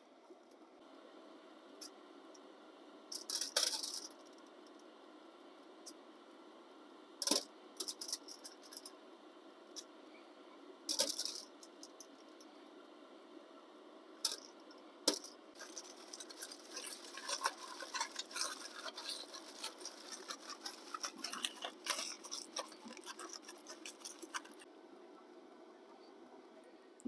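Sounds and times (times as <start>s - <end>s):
plastic packaging crinkling: 15.6s - 24.6s.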